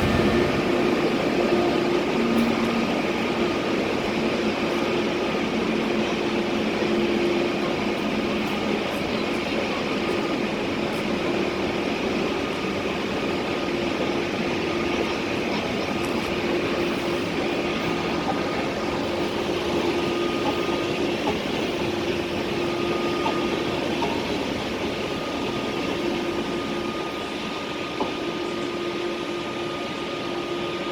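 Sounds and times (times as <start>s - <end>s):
train rolling rumble: 0.0s - 30.9s.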